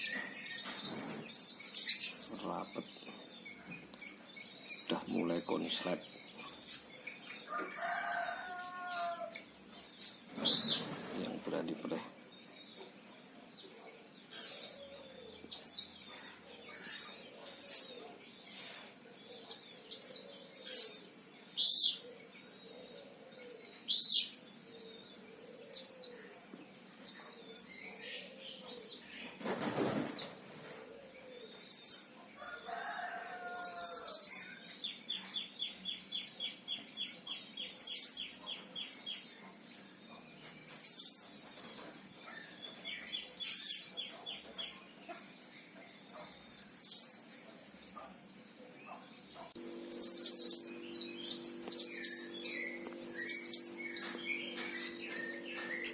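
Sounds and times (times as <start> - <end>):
rustle: 25.7 - 32.6
rattling trill: 49.6 - 55.9.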